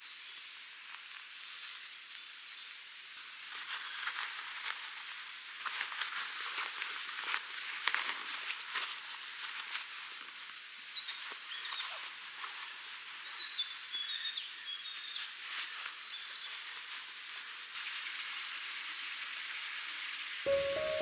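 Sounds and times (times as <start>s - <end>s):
background hiss: 20.5s - 21.0s.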